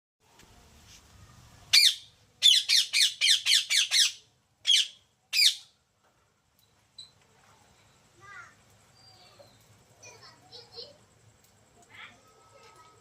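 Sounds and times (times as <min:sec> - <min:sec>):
parrot squawking: 0:01.7 - 0:05.7.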